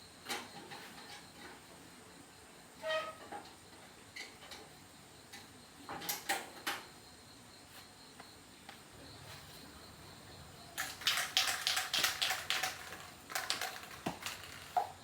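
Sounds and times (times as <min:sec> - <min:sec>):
objects being handled clicking: 0:10.6 - 0:15.0.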